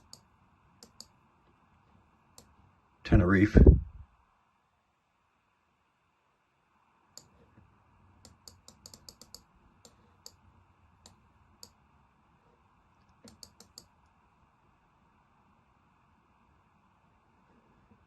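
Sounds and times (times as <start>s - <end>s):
computer mouse clicking: 0.0s - 1.2s, 7.2s - 7.5s, 8.2s - 10.4s, 13.0s - 13.9s.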